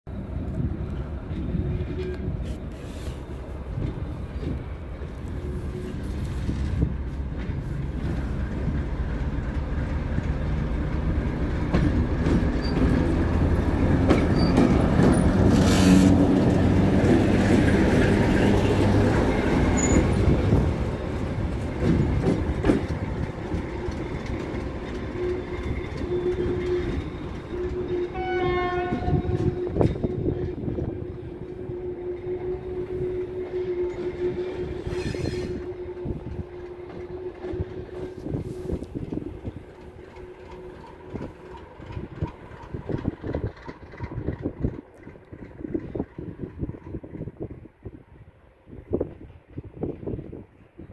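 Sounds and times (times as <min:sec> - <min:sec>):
diesel locomotive engine drone: 0:00.1 - 0:50.9
wheel squeal: 0:12.5 - 0:13.1, 0:14.1 - 0:16.2, 0:19.7 - 0:20.2, 0:33.8 - 0:35.8
wheels clicking over rails: 0:33.4 - 0:47.7.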